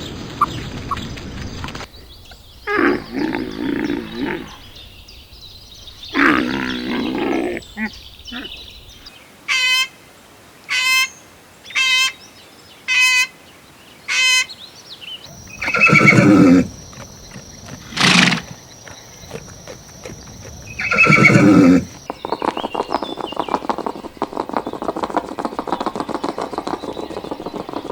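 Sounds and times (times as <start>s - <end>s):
low animal calls: 6.1s - 8.6s, 15.3s - 22.8s.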